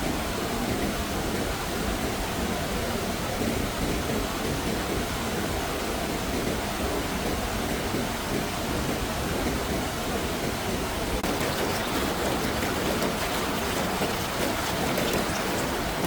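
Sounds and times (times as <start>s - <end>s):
water hissing: 11.2s - 16.0s.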